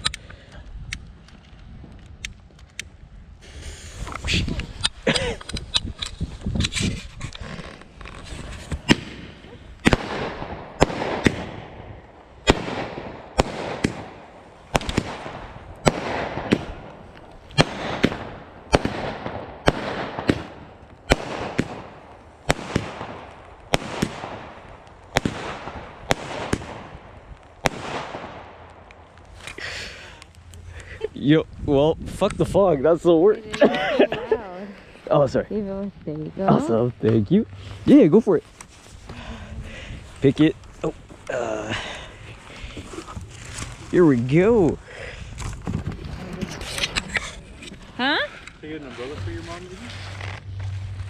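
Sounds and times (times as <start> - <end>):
fireworks bangs: 7.4 - 30.0.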